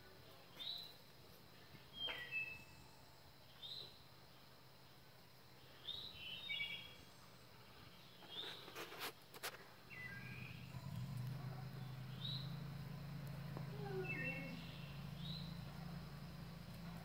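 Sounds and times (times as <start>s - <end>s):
birds chirping: 1.8s - 4.4s, 5.6s - 8.9s, 9.8s - 17.0s.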